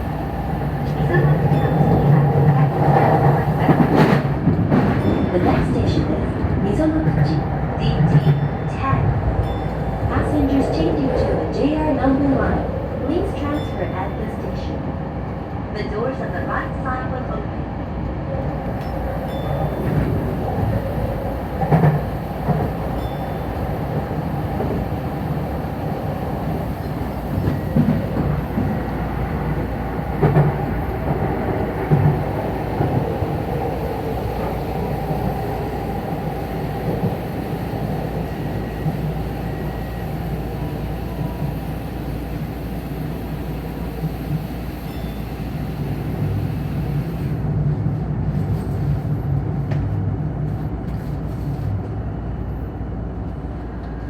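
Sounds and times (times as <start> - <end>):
electric train wheels rumbling: 0.0 - 16.5, 18.0 - 52.0
train knocks: 0.8 - 11.0, 18.8 - 47.2.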